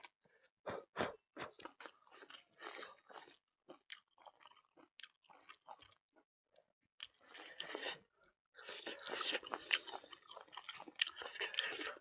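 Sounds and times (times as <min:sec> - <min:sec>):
close chewing and biting: 0:01.4 - 0:06.0, 0:07.0 - 0:12.0.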